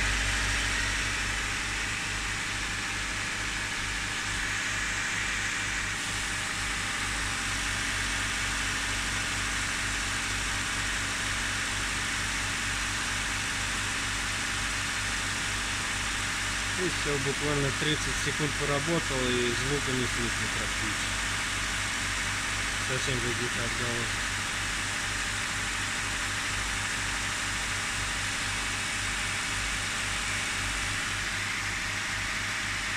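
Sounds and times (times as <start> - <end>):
car engine idling: 0.0 - 5.8
car engine idling with low pulsing: 0.0 - 32.9.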